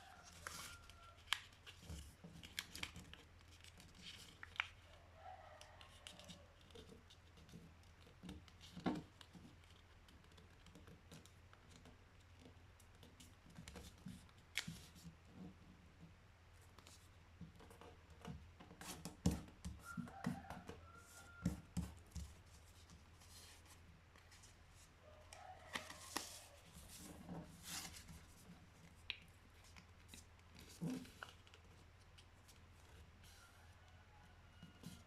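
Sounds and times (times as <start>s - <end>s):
paper rustling: 0.1s - 4.9s, 25.6s - 33.0s.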